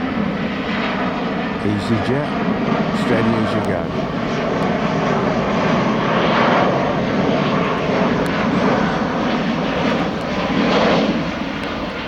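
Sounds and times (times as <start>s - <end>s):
jet airliner flying overhead: 0.0s - 12.0s.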